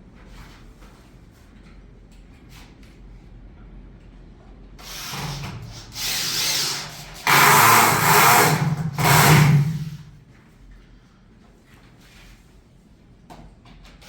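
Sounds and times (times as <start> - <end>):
power tool running: 4.8 - 10.2.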